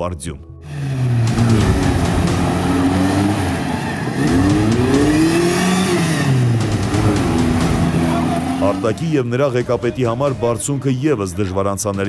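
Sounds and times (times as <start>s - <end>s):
car engine revving hard: 0.6s - 9.1s.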